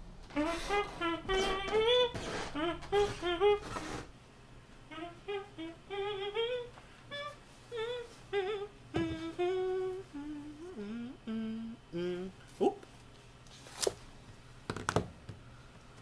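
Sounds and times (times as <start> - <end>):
person humming a tune: 0.3 - 4.1, 4.9 - 12.8.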